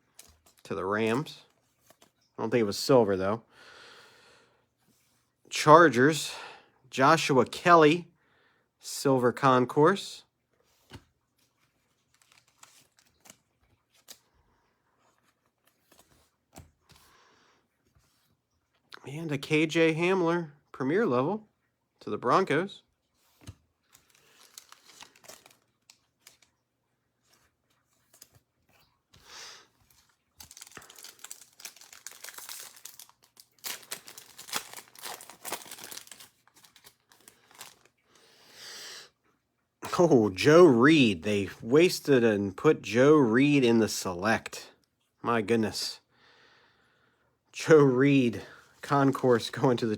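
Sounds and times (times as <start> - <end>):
faint rustling of cards: 0.0 - 3.4, 4.6 - 5.6, 9.2 - 19.5, 22.3 - 40.7, 47.6 - 49.9
foil wrapper crinkling and tearing: 11.9 - 14.3, 23.9 - 26.6, 29.8 - 38.2.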